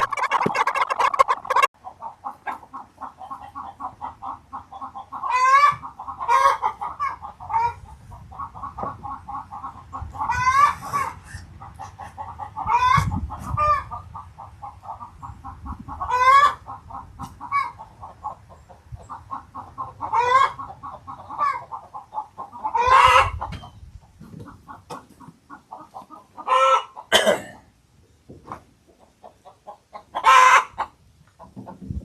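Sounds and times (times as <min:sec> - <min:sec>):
chicken squawking call: 0:00.0 - 0:01.7, 0:09.6 - 0:12.0, 0:16.0 - 0:16.6, 0:22.6 - 0:23.6, 0:26.4 - 0:27.0, 0:30.0 - 0:30.9
chickens clucking: 0:00.0 - 0:27.7, 0:28.3 - 0:32.0.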